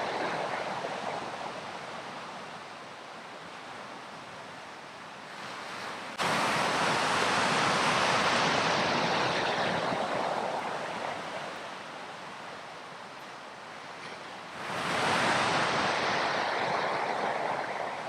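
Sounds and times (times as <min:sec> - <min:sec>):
waves breaking on beach: 0:00.0 - 0:18.0.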